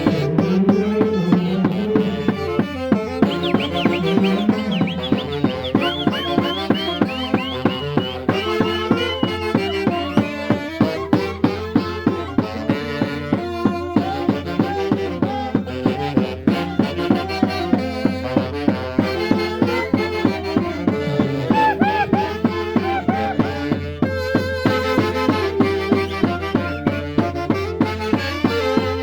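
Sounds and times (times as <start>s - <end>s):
instrumental dance music: 0.0s - 12.4s, 19.0s - 29.0s.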